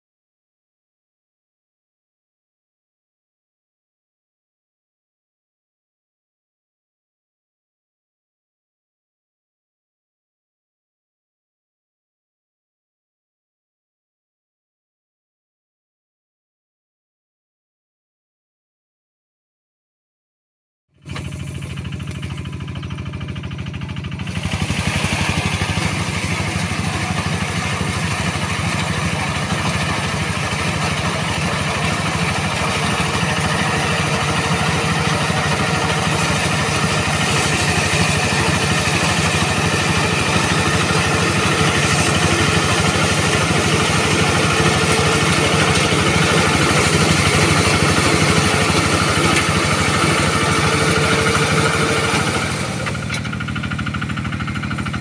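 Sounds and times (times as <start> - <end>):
combine harvester running: 21.0 - 55.0.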